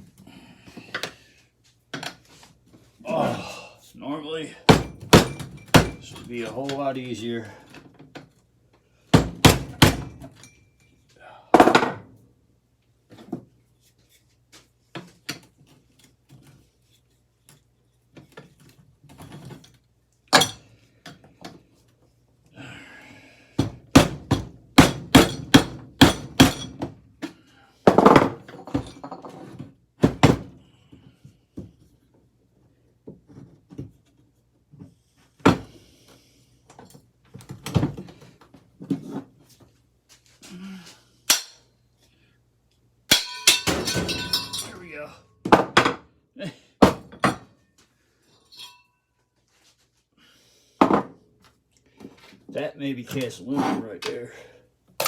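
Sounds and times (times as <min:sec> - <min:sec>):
hammer striking metal: 0:41.3 - 0:41.6, 0:43.1 - 0:44.7.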